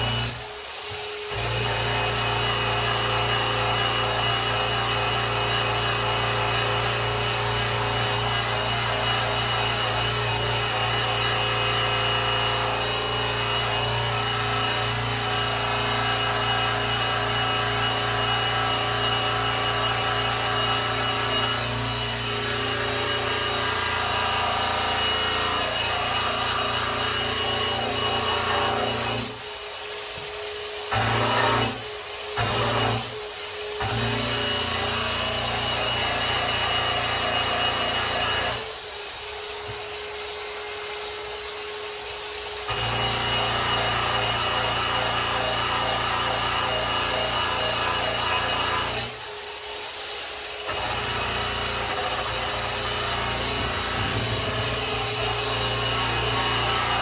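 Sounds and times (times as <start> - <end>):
electric polisher running: 42.8 - 57.0.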